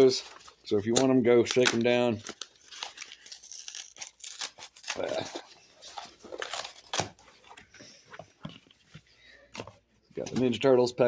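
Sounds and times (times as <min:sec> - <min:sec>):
cardboard rustling and tearing: 0:00.0 - 0:07.7.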